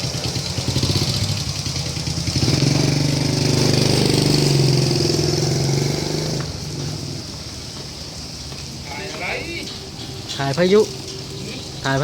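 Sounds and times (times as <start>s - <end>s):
motorcycle engine revving: 0.0s - 7.5s.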